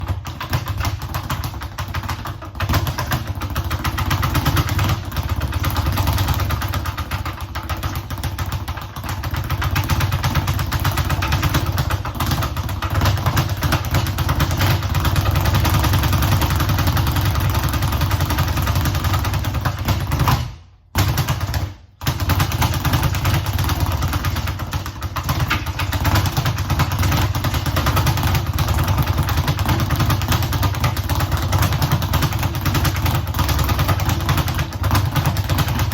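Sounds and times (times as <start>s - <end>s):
speed bag rattling: 21.2s - 35.9s.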